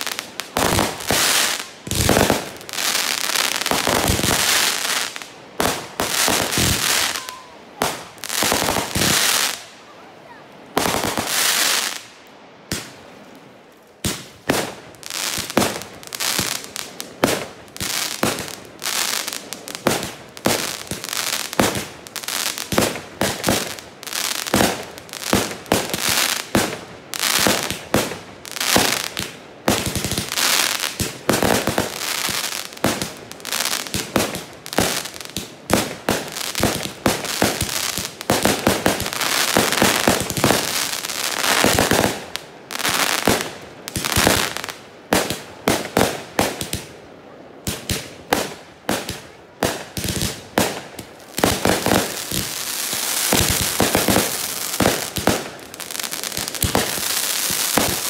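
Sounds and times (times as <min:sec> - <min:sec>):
fireworks bangs and pops: 0:00.0 - 0:09.7, 0:10.7 - 0:12.1, 0:14.0 - 0:46.9, 0:47.6 - 0:58.0
fireworks crackling: 0:00.0 - 0:58.0.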